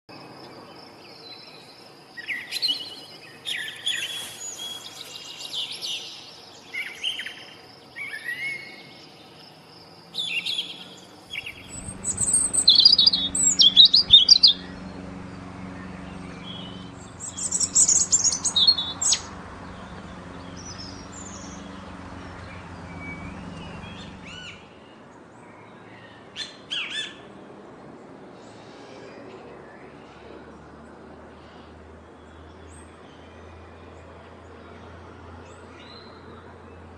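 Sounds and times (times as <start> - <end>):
low steady hum: 11.0 - 24.4.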